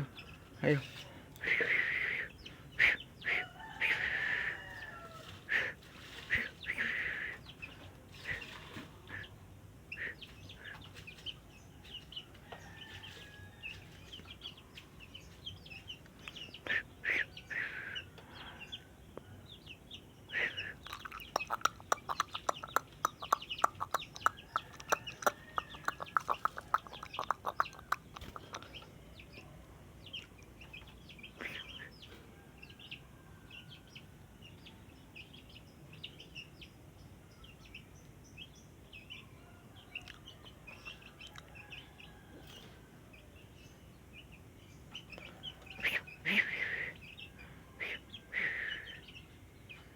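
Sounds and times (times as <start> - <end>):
fast run of sharp ticks: 20.8 - 28.7.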